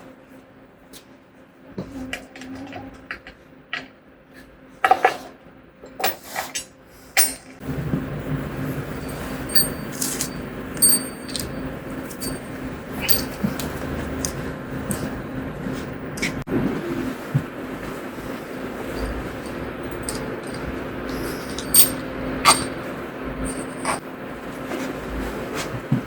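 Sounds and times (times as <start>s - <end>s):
metal parts clinking: 7.2s - 15.3s, 19.0s - 22.8s, 23.4s - 24.0s
steady rushing hum: 7.6s - 16.5s, 18.4s - 24.6s.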